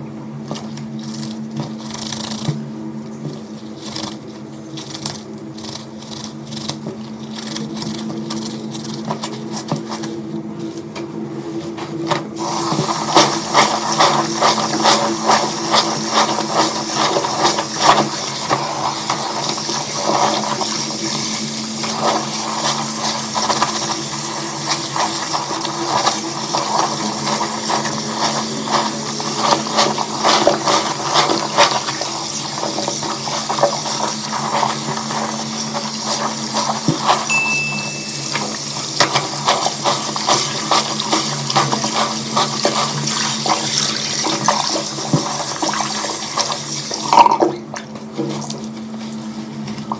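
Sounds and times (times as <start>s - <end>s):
steady low hum: 0.0s - 49.9s
water running and splashing: 12.4s - 37.3s, 38.1s - 47.2s.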